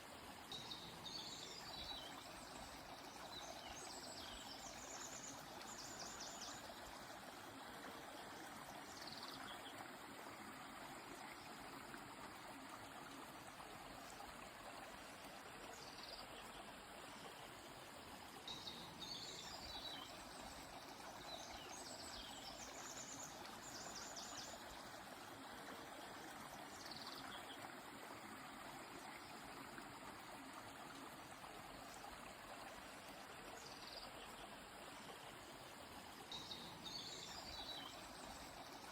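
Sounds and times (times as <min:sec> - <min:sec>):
river flowing: 0:00.0 - 0:38.9.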